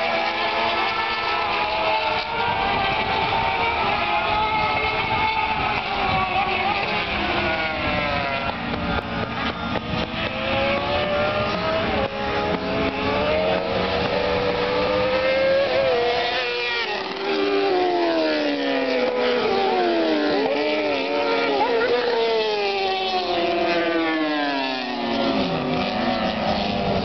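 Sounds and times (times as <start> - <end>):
superbike engines revving: 0.0 - 27.0.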